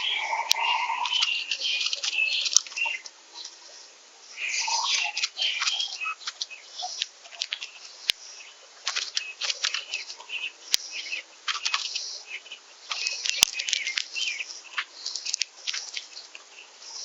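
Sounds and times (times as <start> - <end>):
songbirds chirping: 0.0 - 17.0
sharp clicks: 12.9 - 14.3.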